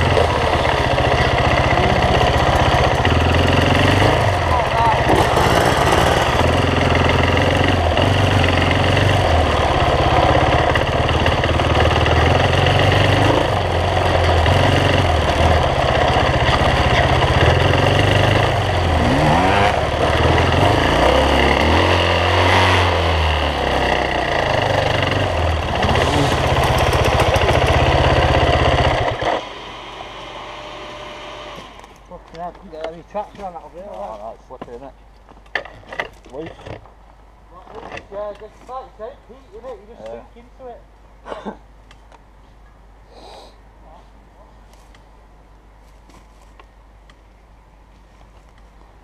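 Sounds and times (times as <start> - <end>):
dirt bike engine revving: 0.0 - 31.8.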